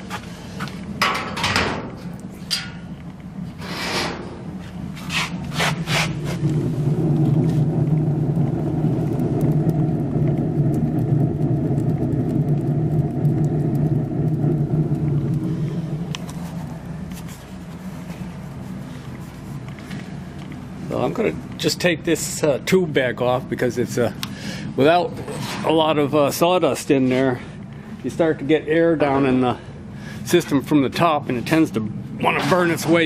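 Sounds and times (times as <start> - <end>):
furnace fire rushing: 0.0 - 33.0
metal cover clanking: 1.0 - 1.9.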